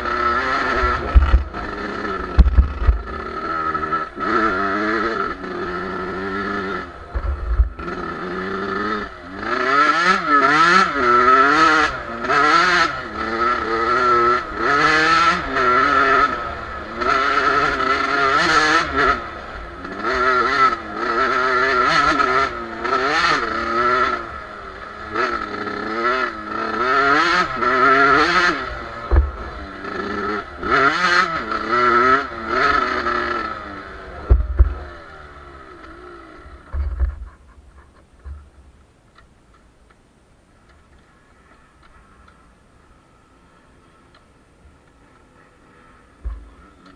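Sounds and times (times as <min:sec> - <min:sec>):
motocross bike engine revving: 0:00.0 - 0:39.2, 0:40.6 - 0:46.9.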